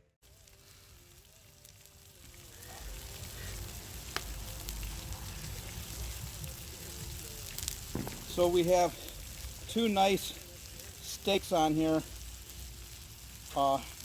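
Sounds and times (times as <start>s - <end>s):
steaks sizzling on a grill: 0.2s - 14.0s
fat popping: 7.6s - 8.4s.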